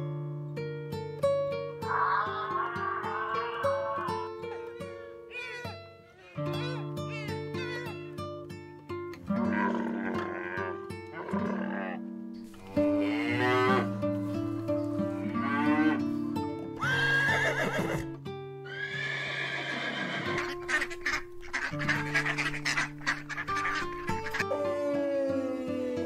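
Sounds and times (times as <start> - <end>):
acoustic guitar music: 0.0 - 18.7, 20.3 - 26.0
cattle mooing: 1.8 - 5.6, 9.4 - 14.0, 15.1 - 16.1
camel calling: 1.8 - 8.2, 9.4 - 14.0, 16.8 - 18.0, 18.7 - 26.0
geese honking: 20.3 - 24.5.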